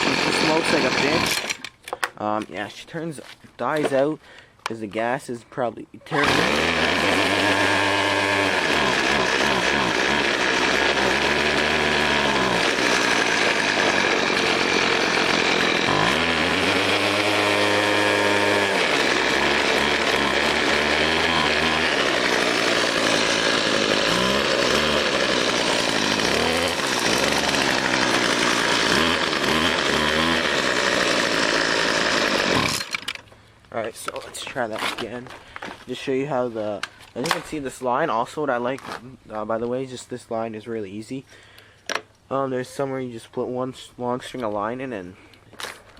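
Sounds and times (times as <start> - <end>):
string trimmer engine revving: 0.0 - 1.7, 6.1 - 33.2.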